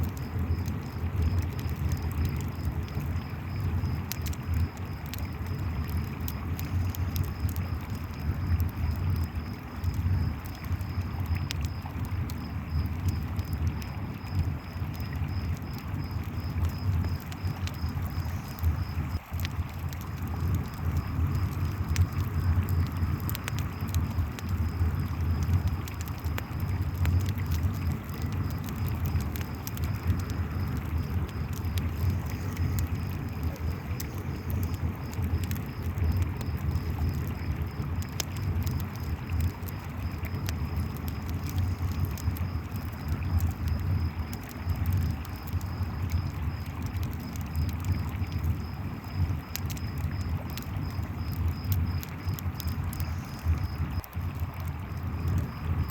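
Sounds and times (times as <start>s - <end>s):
campfire crackling and popping: 0.0s - 55.9s
crickets chirping: 0.0s - 55.9s.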